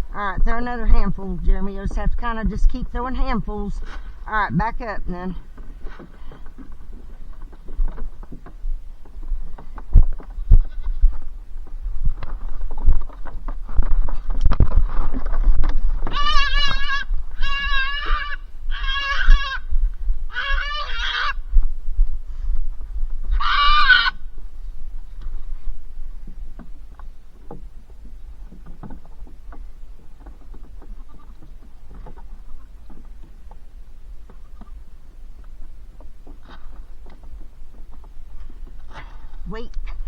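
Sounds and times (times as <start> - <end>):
rustling: 1.5 - 40.0
goat bleating: 16.1 - 19.7, 20.3 - 21.4, 23.3 - 24.2.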